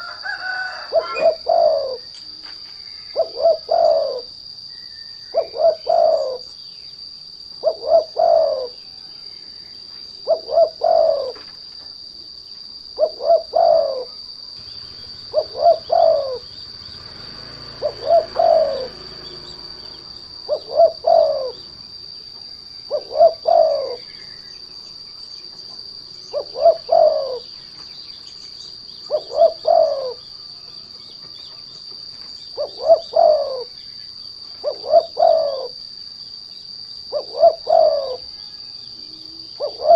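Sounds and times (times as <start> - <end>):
dove cooing: 0.0 - 6.6, 7.5 - 9.0, 10.2 - 11.6, 12.9 - 22.1, 22.7 - 24.7, 25.6 - 31.7, 32.4 - 36.0, 37.1 - 39.9
high-pitched insect drone: 0.0 - 39.9.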